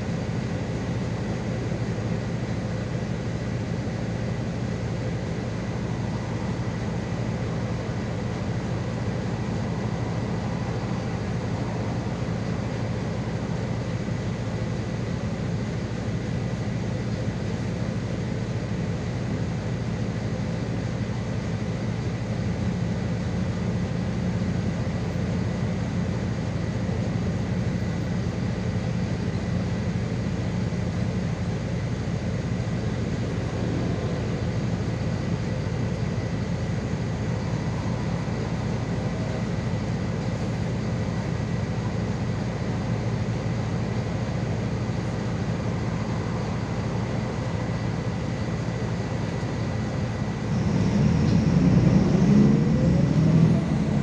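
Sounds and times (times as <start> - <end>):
bus engine drone: 0.0 - 54.0
road noise: 0.0 - 54.0
thin steady whine: 0.0 - 54.0.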